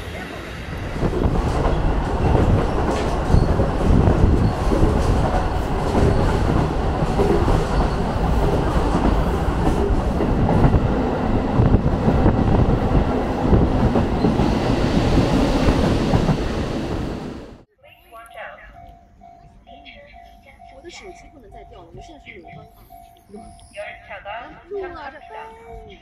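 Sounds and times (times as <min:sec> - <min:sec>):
train wheels rumbling on rails: 0:00.0 - 0:17.6.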